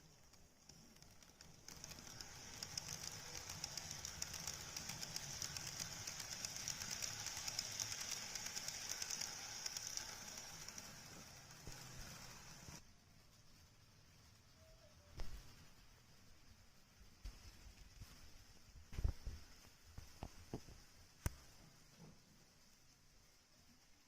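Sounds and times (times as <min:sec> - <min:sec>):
train running past: 0:01.7 - 0:12.8.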